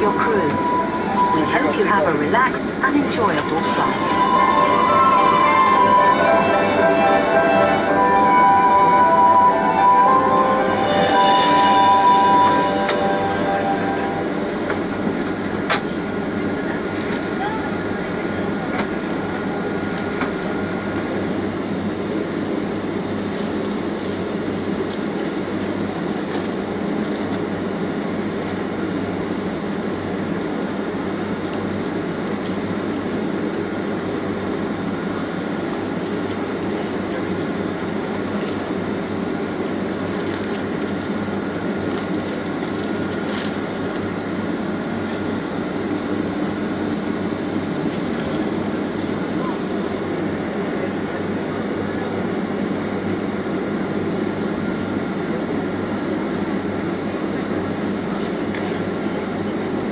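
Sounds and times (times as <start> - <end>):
jet engines humming: 0.0 - 52.6
air-conditioning flow: 0.0 - 59.9.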